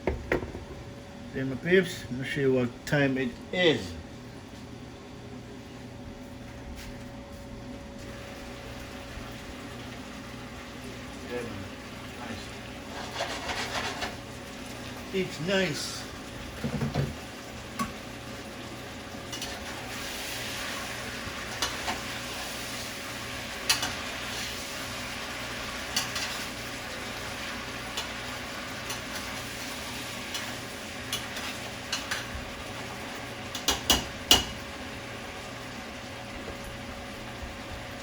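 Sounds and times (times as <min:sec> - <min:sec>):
food sizzling in a pot: 0:08.1 - 0:38.0.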